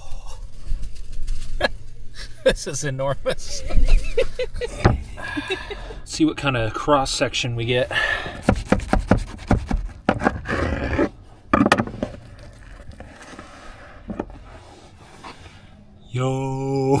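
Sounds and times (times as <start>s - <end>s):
knife sawing through crusty bread: 8.4s - 11.2s.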